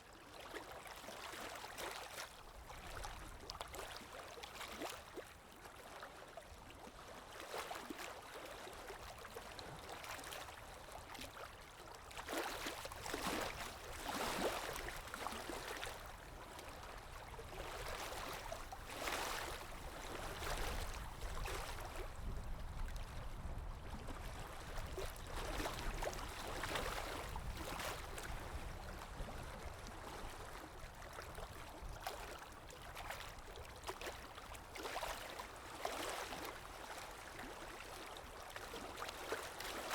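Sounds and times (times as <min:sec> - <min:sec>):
sea waves lapping: 0:12.1 - 0:22.7, 0:24.4 - 0:29.0.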